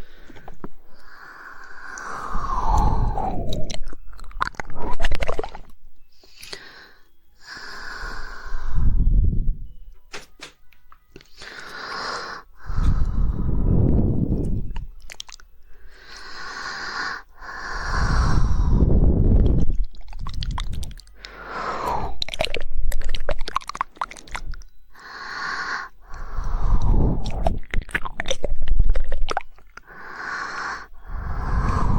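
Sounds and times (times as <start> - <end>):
person breathing into microphone: 0.0 - 3.9, 6.1 - 9.7, 11.3 - 14.9, 15.7 - 22.9, 24.4 - 27.7, 29.8 - 31.9
wet mouth noises: 0.0 - 6.7, 12.6 - 31.9
quick tongue clicks: 1.8 - 6.7, 14.5 - 16.3, 19.4 - 24.7, 26.1 - 30.0.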